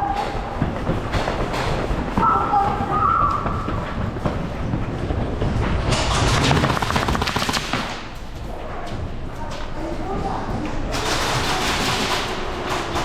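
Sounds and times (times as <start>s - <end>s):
airsoft guns firing full auto: 6.1s - 8.2s, 10.9s - 12.9s.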